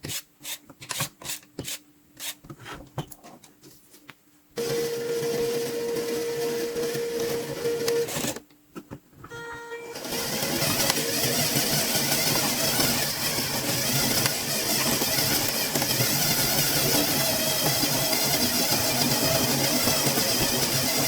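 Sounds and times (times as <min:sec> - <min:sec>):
toy car motors and gears whirring: 0:10.0 - 0:21.0.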